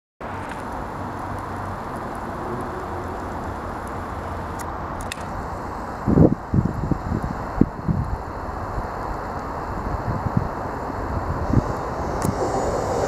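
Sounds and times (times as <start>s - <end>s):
diesel train drone and rush: 0.2s - 13.0s
faint clicks: 4.6s - 5.3s.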